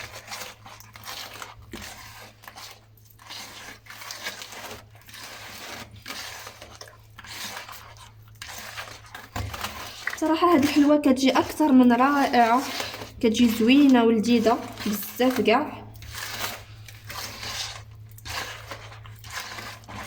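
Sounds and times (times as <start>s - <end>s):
mixture scraping and squelching in bowl: 0.0s - 20.0s.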